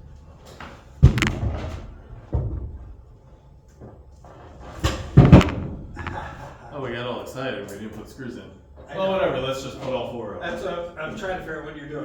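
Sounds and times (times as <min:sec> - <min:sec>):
heavy wooden thuds: 0:01.0 - 0:03.1, 0:04.8 - 0:06.6.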